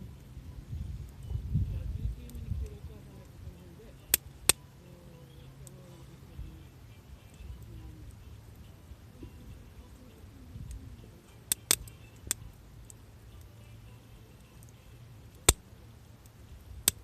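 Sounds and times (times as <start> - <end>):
loud crack of burning wood: 0.0 - 4.8, 5.6 - 13.6, 14.4 - 17.0
campfire crackling: 0.0 - 17.0
low steady rumble: 0.0 - 17.0
sharp pops of burning wood: 4.0 - 4.8, 10.7 - 13.5, 14.4 - 17.0.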